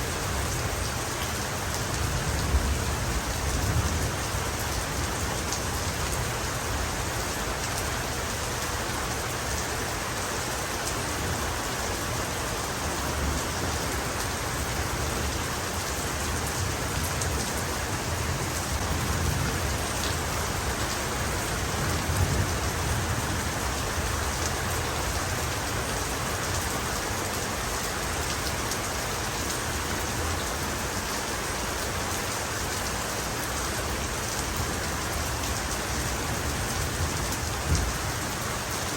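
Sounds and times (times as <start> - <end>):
heavy rain falling: 0.0 - 38.9
low rumbles of thunder: 17.8 - 25.1, 36.0 - 38.4.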